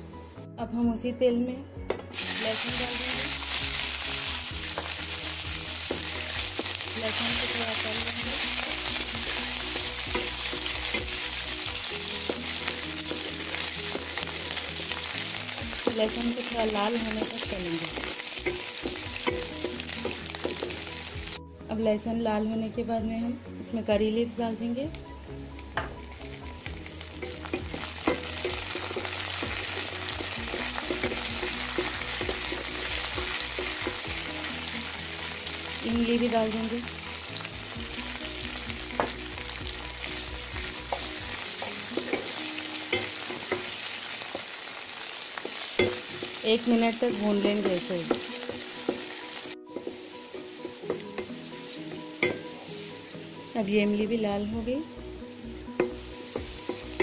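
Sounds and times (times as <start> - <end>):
garlic sizzling in hot oil: 2.1 - 21.4, 24.3 - 57.0
spatula scraping and tapping pan: 9.1 - 11.4, 17.0 - 21.1, 27.2 - 34.2, 45.4 - 46.4, 47.1 - 52.6, 55.8 - 57.0.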